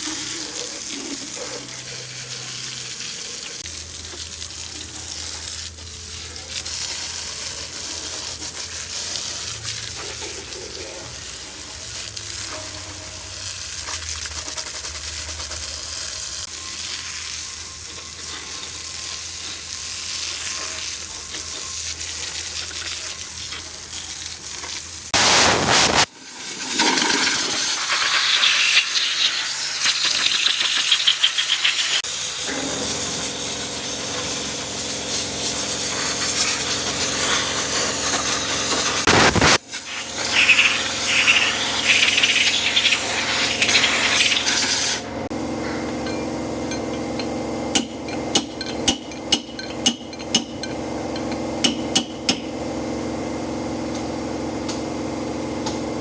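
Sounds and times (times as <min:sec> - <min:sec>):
hissing: 0:25.2 - 0:26.1.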